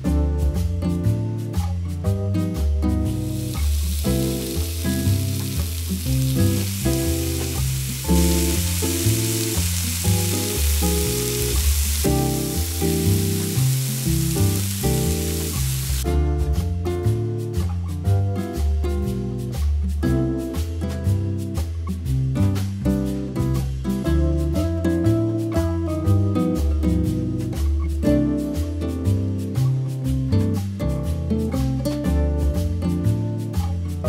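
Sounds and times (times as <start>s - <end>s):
background music: 0.0s - 34.0s
onions sizzling in hot oil: 3.0s - 16.0s.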